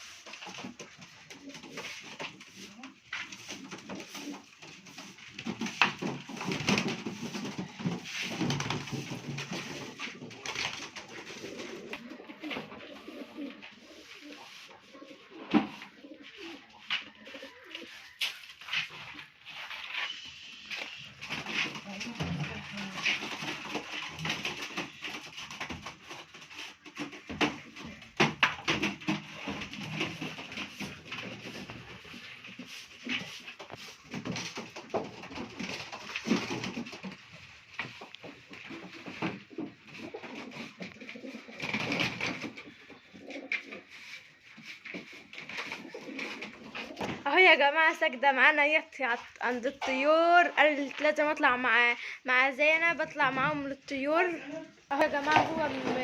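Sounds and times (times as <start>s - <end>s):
scrapes and knocks in coop: 0.0s - 47.3s
scraping and knocking: 0.2s - 12.6s, 54.9s - 56.0s.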